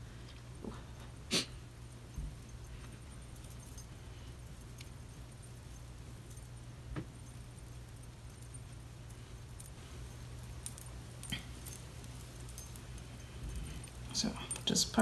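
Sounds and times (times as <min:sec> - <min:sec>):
light clicks and rustles: 0:00.2 - 0:15.0.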